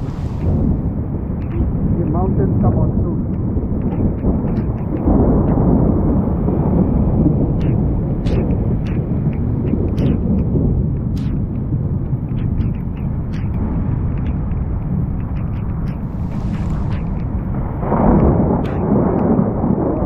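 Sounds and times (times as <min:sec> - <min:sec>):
rolling thunder: 0:00.0 - 0:11.0, 0:15.8 - 0:20.0
sharp ticks: 0:00.0 - 0:20.0.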